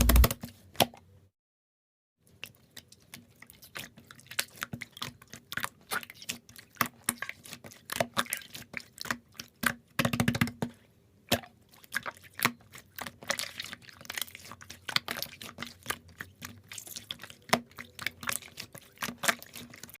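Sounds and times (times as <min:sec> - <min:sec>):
slime squished by hand: 0:11.3 - 0:20.0.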